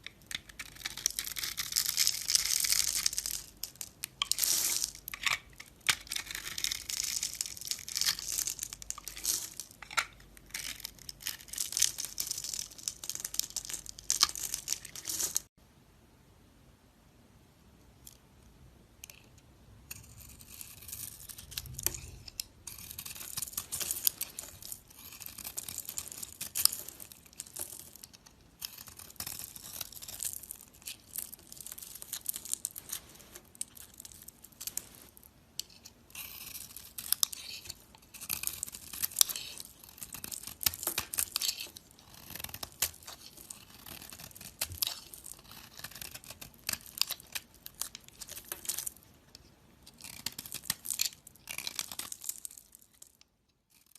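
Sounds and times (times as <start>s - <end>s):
blade scraping soap: 19.9s - 27.6s, 35.7s - 48.8s.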